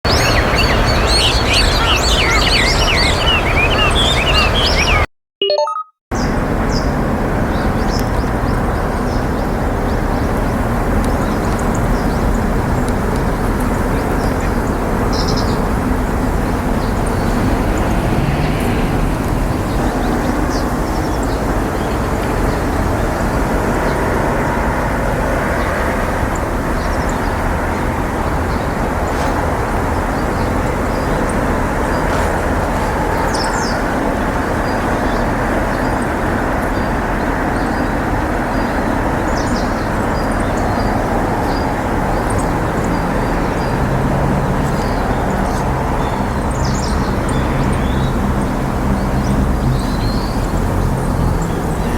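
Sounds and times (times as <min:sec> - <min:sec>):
low outdoor background roar: 0:00.1 - 0:05.1, 0:06.2 - 0:51.9
faint high bird chirps: 0:00.1 - 0:05.8.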